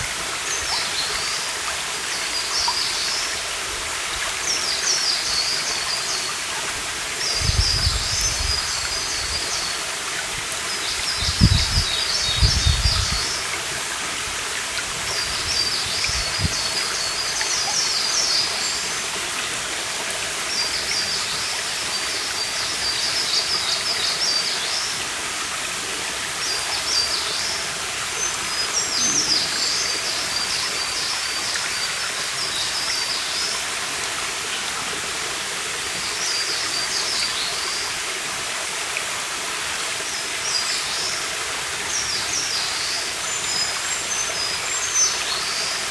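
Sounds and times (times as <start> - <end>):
stream babbling: 0.0 - 45.9
songbird singing: 10.6 - 13.6, 26.4 - 33.5, 41.9 - 45.9.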